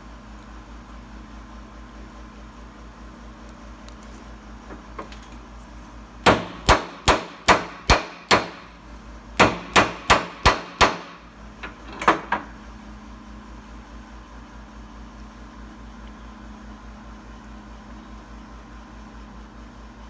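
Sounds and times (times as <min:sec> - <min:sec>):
hammer striking metal: 0:06.3 - 0:08.8, 0:09.4 - 0:11.3.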